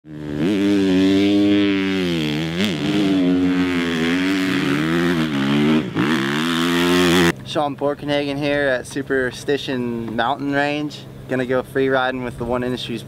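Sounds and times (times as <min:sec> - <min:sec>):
dirt bike engine revving: 0:00.1 - 0:07.4.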